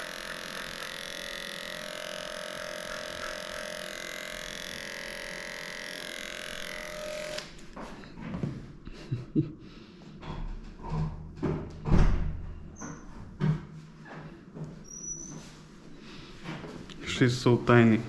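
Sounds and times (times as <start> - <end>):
electric clipper humming: 0.0 - 7.7.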